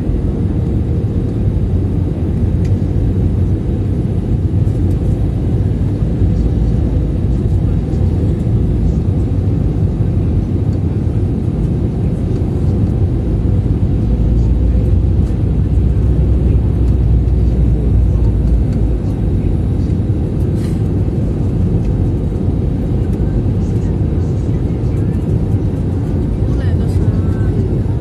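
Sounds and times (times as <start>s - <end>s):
airplane cabin engine rumble: 0.0s - 28.0s
constant hum: 0.0s - 28.0s.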